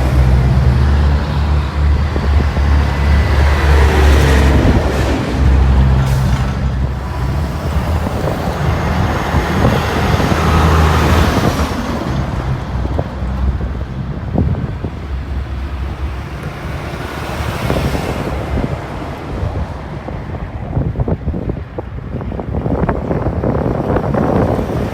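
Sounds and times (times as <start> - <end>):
trucks driving past: 0.0 - 24.9.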